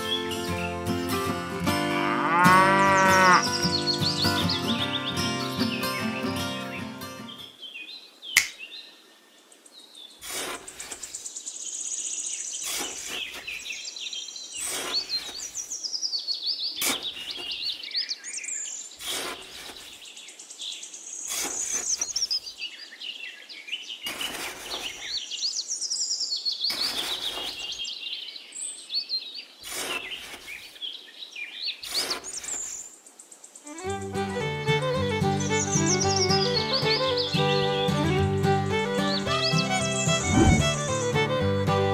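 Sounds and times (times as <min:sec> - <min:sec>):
birds chirping: 0:02.2 - 0:34.2, 0:34.8 - 0:41.4
metal trowel scraping damp sand: 0:10.2 - 0:11.3, 0:12.6 - 0:13.8, 0:14.6 - 0:15.8, 0:16.8 - 0:17.7, 0:19.0 - 0:20.1, 0:21.3 - 0:22.4, 0:24.1 - 0:25.2, 0:26.7 - 0:27.8, 0:29.6 - 0:30.8, 0:31.8 - 0:32.9.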